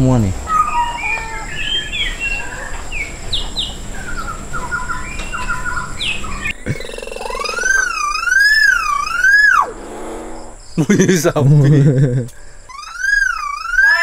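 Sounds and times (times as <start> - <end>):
birds chirping: 0.0 - 14.0
myna whistling: 0.5 - 9.8, 12.7 - 14.0.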